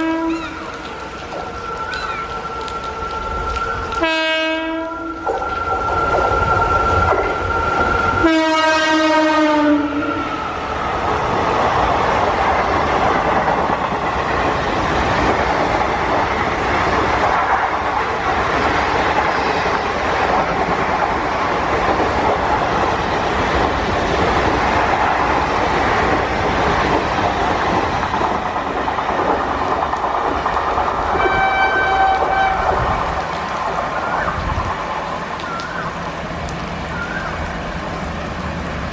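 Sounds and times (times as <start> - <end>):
train horn blast: 0.0 - 5.4, 8.2 - 10.5, 31.2 - 33.0
train rumbling past: 0.0 - 38.9.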